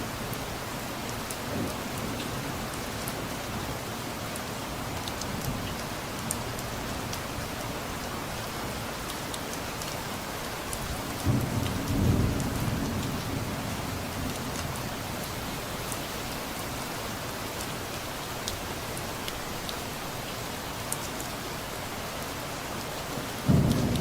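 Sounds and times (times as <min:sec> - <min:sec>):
steady rain falling: 0:00.0 - 0:24.0
distant thunder rolling: 0:11.2 - 0:15.1, 0:23.4 - 0:24.0.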